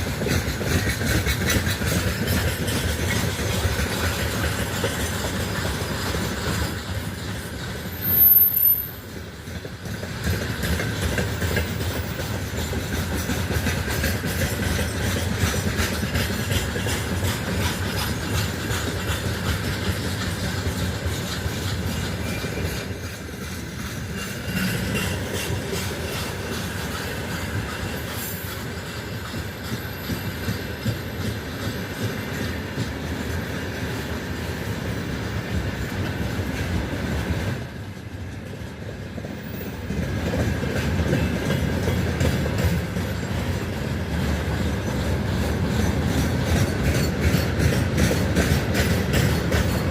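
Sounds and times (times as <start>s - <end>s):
train wheels clattering over rails: 0.0s - 49.9s
high-pitched wheel squeal: 7.8s - 9.1s.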